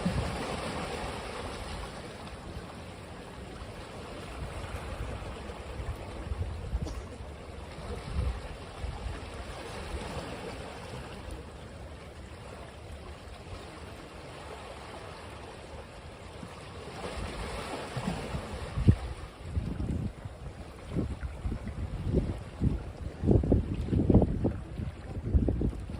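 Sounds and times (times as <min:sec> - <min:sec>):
surf rushing on beach: 0:00.0 - 0:06.2
wind buffeting microphone: 0:18.0 - 0:25.9.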